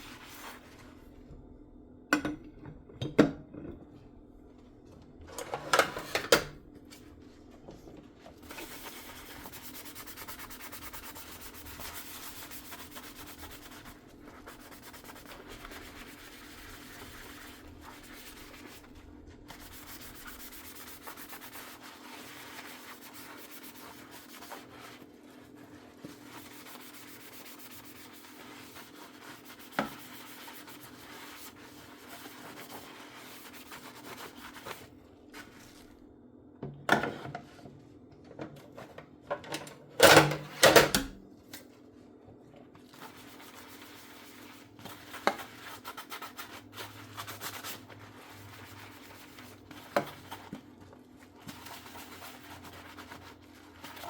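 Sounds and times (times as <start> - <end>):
sponge scrubbing dishes: 0.0 - 1.2, 7.2 - 36.0, 42.6 - 54.0.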